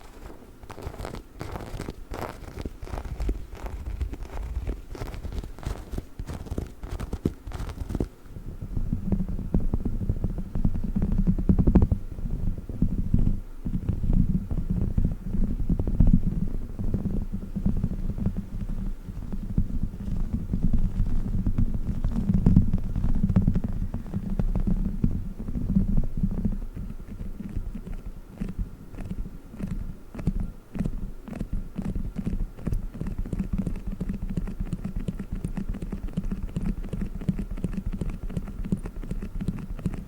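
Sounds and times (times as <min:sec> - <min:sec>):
toy rubbing and squishing: 0:00.0 - 0:08.1.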